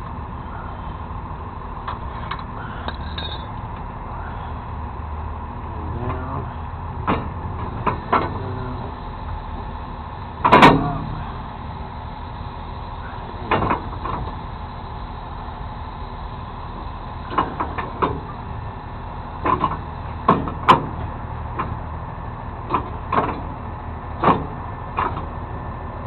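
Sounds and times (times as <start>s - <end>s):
truck engine running: 0.0s - 26.0s
metal clanks and knocks: 7.0s - 8.7s, 10.4s - 11.2s, 13.4s - 14.4s, 19.4s - 21.8s, 22.7s - 23.6s.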